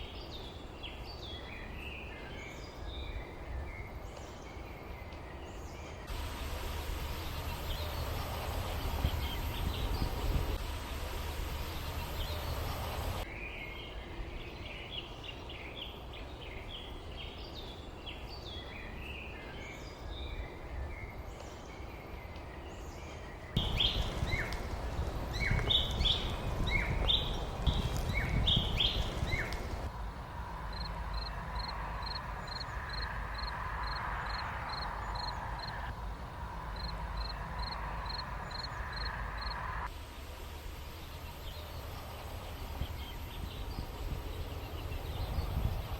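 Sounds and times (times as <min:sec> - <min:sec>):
birds chirping and twittering: 0:00.0 - 0:29.9, 0:30.7 - 0:35.9, 0:40.8 - 0:45.9
low outdoor rumble: 0:06.1 - 0:13.3, 0:23.3 - 0:45.9.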